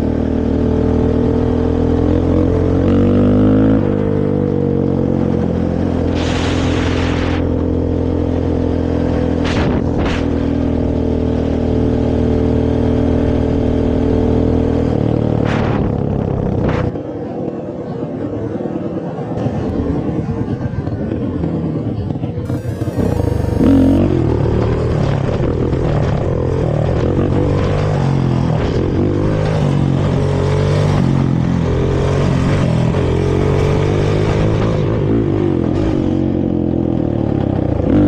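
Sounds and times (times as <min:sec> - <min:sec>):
short hiss: 0:06.1 - 0:07.5
quad bike engine revving: 0:22.5 - 0:38.0.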